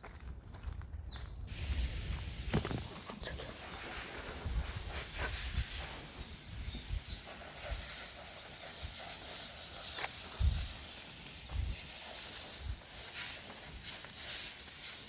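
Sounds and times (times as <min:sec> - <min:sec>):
footsteps on forest path: 0:00.0 - 0:05.4, 0:09.8 - 0:14.8
forest ambience hiss: 0:01.5 - 0:15.0.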